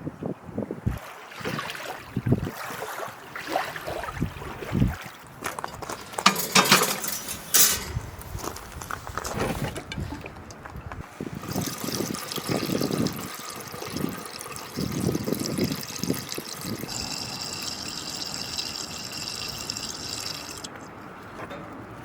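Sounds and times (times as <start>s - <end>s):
water pouring into container: 11.4s - 20.7s.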